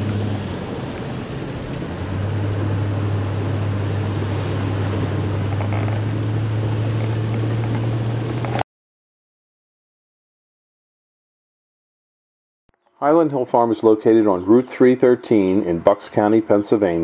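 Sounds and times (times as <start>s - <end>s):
car engine and road drone: 0.0s - 8.6s
heavy rain hiss: 0.0s - 8.6s.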